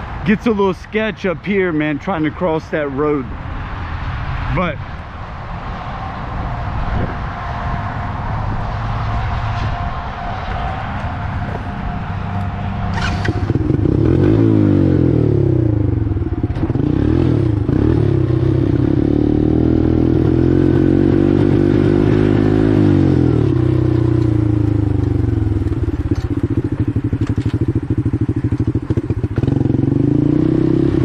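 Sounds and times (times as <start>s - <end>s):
atv engine revving: 10.5s - 31.0s.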